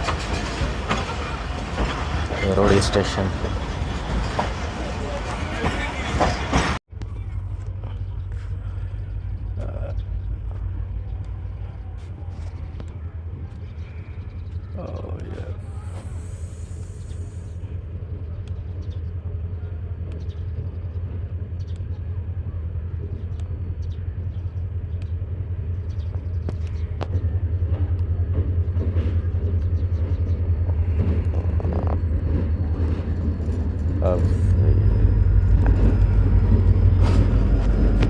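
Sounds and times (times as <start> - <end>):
faint voices: 0.0 - 18.4, 26.7 - 38.0
train rumbling: 0.0 - 38.0.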